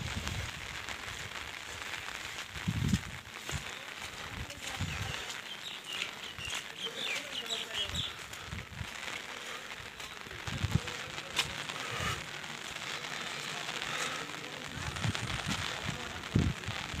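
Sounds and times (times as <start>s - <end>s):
wind buffeting microphone: 0.0s - 1.5s, 2.4s - 6.6s, 7.8s - 9.0s, 10.4s - 11.1s, 14.7s - 17.0s
rain hissing: 0.0s - 17.0s.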